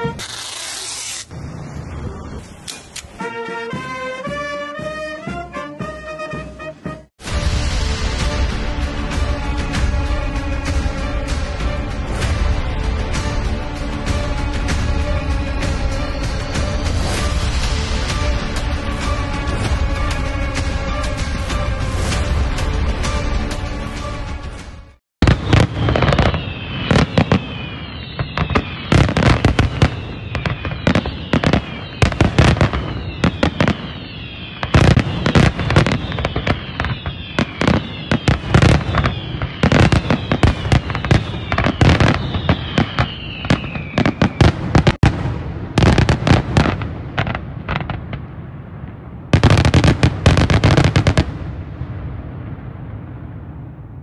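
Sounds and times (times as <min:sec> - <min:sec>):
fireworks bangs and crackles: 0:00.0 - 0:03.2, 0:07.1 - 0:23.6, 0:25.2 - 0:54.0
whistling fireworks: 0:00.0 - 0:03.4, 0:14.1 - 0:18.4, 0:25.2 - 0:54.0.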